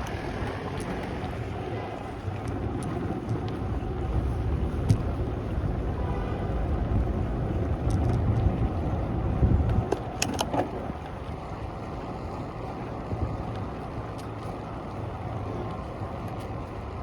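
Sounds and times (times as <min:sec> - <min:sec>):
city street noise: 0:00.0 - 0:17.0
wind buffeting microphone: 0:00.0 - 0:17.0.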